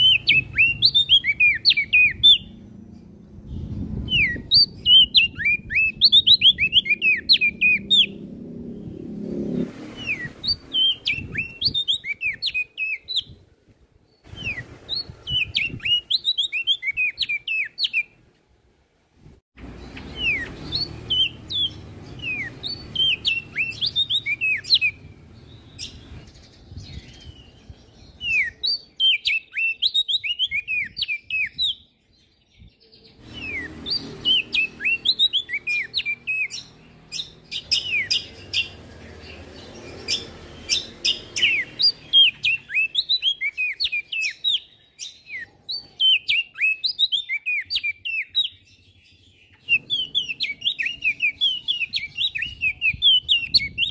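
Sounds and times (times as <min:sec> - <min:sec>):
songbird chirping: 0:00.0 - 0:18.6, 0:19.6 - 0:53.9.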